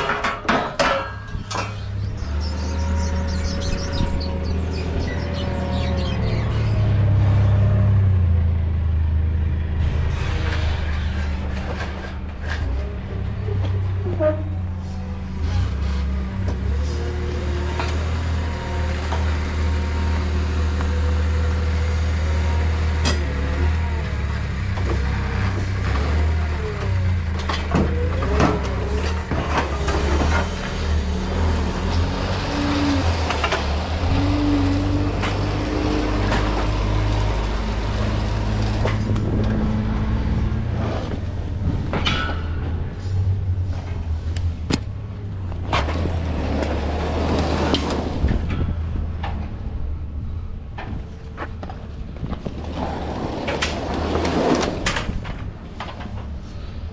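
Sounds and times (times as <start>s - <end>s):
knocks and clanks: 0.0s - 2.2s, 41.0s - 43.2s
forklift engine running: 1.2s - 56.9s.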